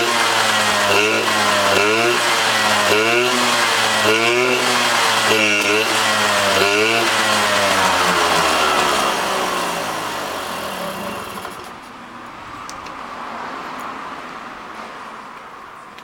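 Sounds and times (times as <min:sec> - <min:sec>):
engine winding down: 0:00.0 - 0:11.9.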